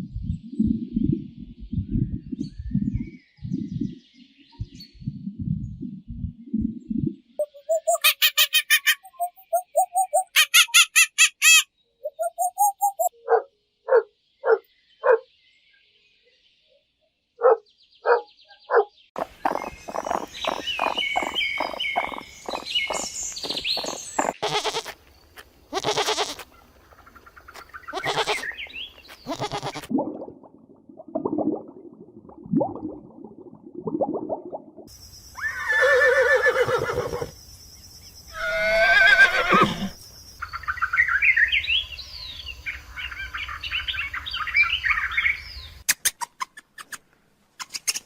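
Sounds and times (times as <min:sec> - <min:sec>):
high bird chirping: 0:07.4 - 0:15.3, 0:17.4 - 0:24.9
animal calls: 0:17.4 - 0:24.9, 0:38.3 - 0:40.0.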